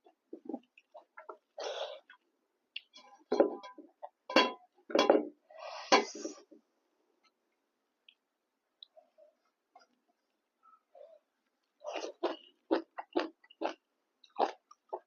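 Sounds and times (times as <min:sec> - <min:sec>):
wet chewing and mouth sounds: 0:11.6 - 0:15.0.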